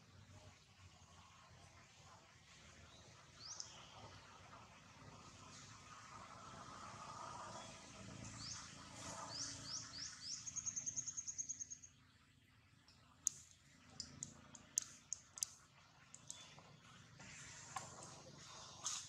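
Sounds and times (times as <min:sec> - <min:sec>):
bird chirps and trill: 0:08.3 - 0:11.9
sharp clicks: 0:13.2 - 0:16.5.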